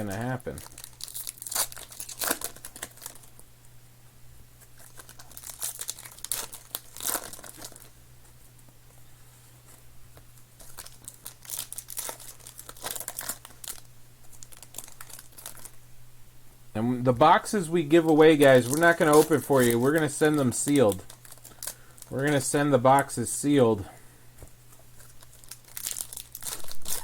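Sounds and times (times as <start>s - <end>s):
plastic wrappers crinkling and tearing: 0.0s - 3.5s, 4.6s - 8.0s, 10.2s - 15.8s, 17.2s - 23.7s, 24.8s - 27.0s
low electrical hum: 0.0s - 27.0s.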